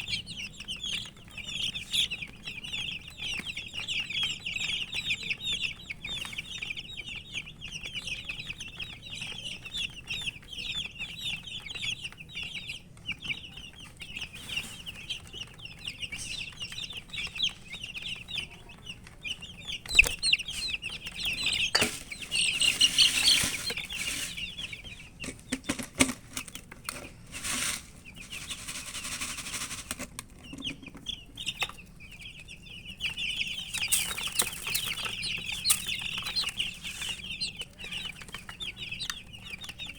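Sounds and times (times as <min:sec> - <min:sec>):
baby chicks peeping: 0:00.0 - 0:39.9
rustling: 0:14.0 - 0:31.8, 0:33.0 - 0:39.7.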